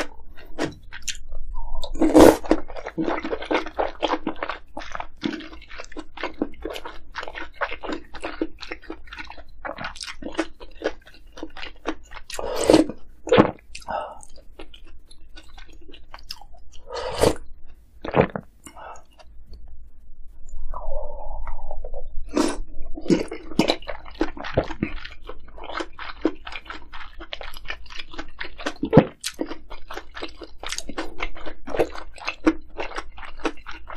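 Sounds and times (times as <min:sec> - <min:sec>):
chewing crunchy food: 0:00.0 - 0:19.7, 0:22.2 - 0:33.9.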